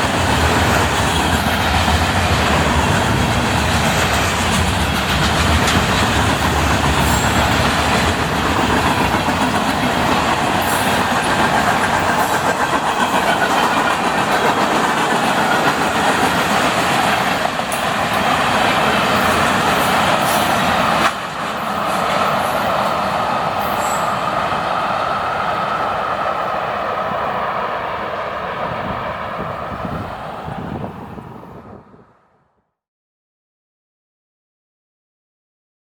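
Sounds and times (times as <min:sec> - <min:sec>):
freight train wheels clattering: 0:00.0 - 0:26.2.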